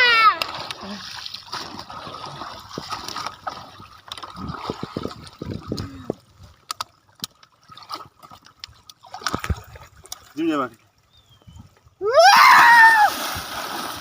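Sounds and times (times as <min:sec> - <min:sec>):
water trickling and gurgling: 0:00.4 - 0:12.0
small drips and clicks: 0:02.7 - 0:11.9.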